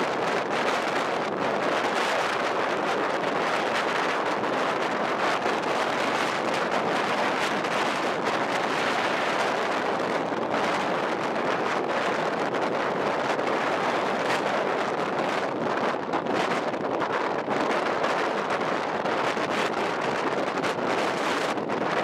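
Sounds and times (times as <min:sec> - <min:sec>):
blizzard wind blowing: 0:00.0 - 0:22.0.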